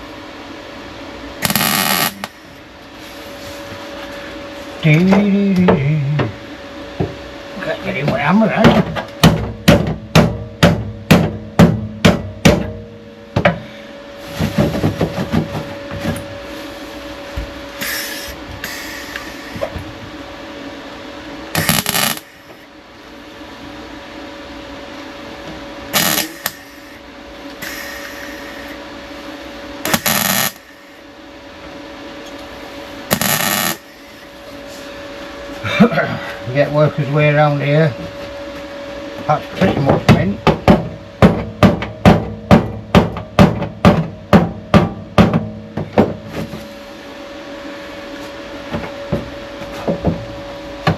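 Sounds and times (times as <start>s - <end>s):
steady background hum: 0.0s - 50.9s
harsh hiss bursts: 1.4s - 2.6s, 17.8s - 19.6s, 21.6s - 22.6s, 26.0s - 27.0s, 29.9s - 30.9s, 33.1s - 34.2s.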